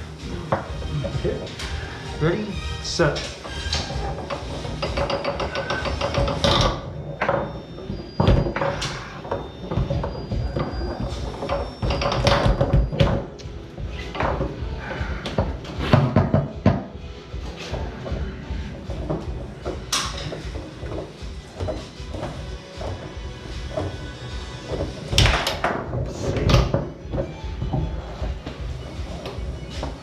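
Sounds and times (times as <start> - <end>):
background music: 0.0 - 30.0
foosball knocking against rods: 3.3 - 7.6, 15.3 - 17.0, 18.9 - 30.0.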